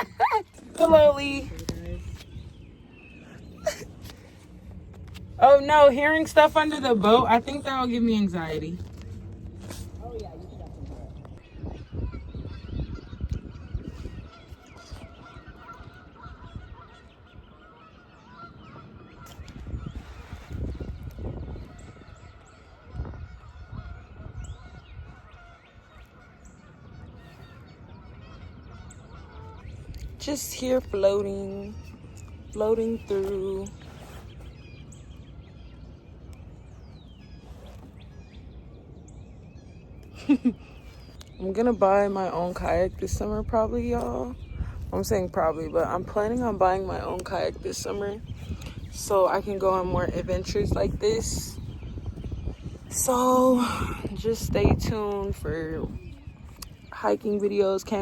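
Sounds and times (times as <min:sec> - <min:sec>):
small birds chirping: 0:00.0 - 0:58.0
geese honking: 0:14.1 - 0:19.6, 0:21.5 - 0:33.8
microphone rumble: 0:19.4 - 0:25.4, 0:40.1 - 0:58.0.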